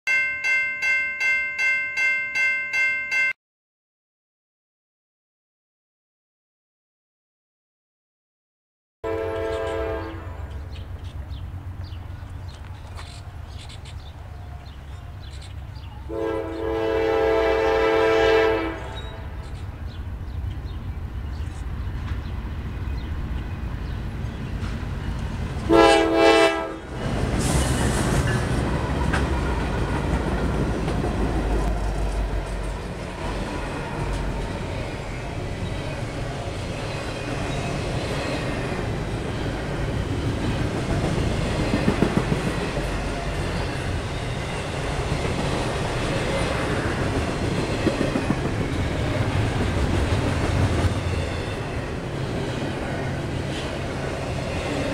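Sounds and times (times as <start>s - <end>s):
locomotive air horn blasts: 9.0s - 10.6s, 16.1s - 19.3s, 25.7s - 27.0s
low locomotive engine rumble: 9.1s - 54.9s
train wheel clatter on rails: 27.0s - 34.8s, 39.8s - 52.7s.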